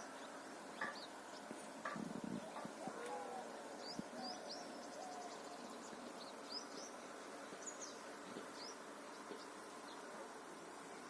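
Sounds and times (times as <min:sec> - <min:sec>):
birds chirping: 0:00.0 - 0:11.0
steady hiss: 0:00.0 - 0:11.0.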